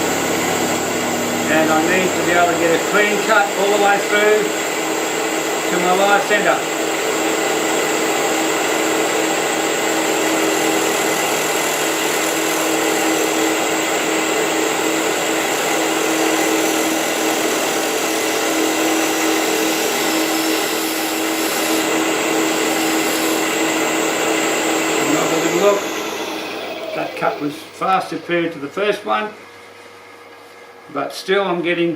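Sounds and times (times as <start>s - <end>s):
lathe motor whine: 0.0s - 28.7s
gouge cutting hiss: 19.5s - 23.6s, 25.0s - 28.3s.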